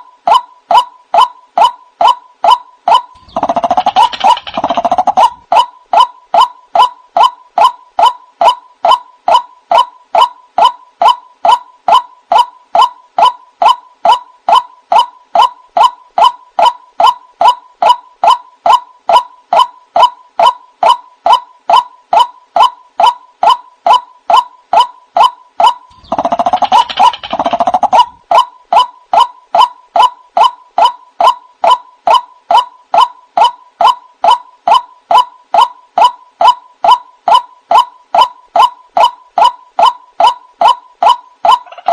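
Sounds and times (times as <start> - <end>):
waterhen calling: 1.6 - 7.0.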